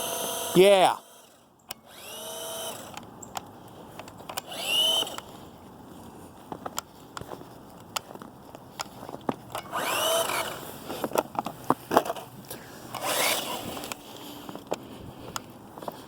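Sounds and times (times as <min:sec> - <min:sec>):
electric motor revving: 0:00.0 - 0:03.0, 0:04.4 - 0:05.2, 0:09.7 - 0:10.6, 0:13.0 - 0:14.0.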